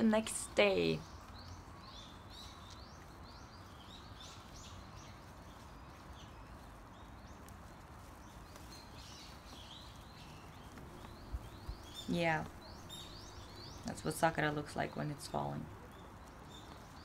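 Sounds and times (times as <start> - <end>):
outdoor background hiss: 0.0 - 17.0
faint bird chirps: 8.3 - 17.0.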